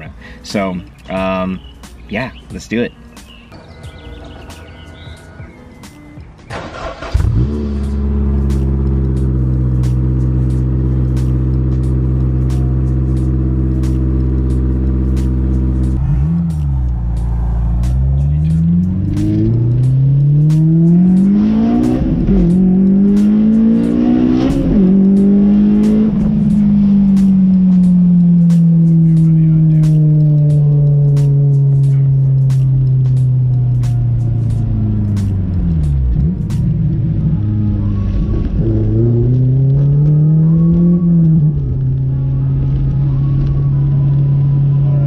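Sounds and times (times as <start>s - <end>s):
car engine starting: 3.2s - 45.0s
car engine idling: 3.3s - 24.0s, 24.8s - 39.5s
car engine revving through gears: 6.5s - 45.0s.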